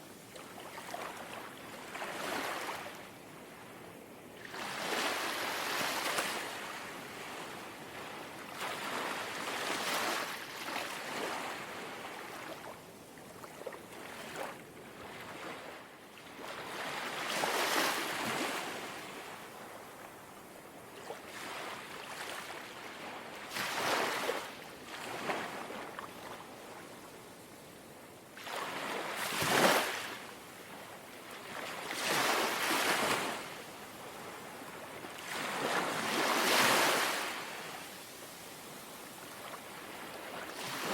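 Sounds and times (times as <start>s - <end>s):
sea waves lapping on shore: 21.0s - 26.9s, 28.4s - 40.9s.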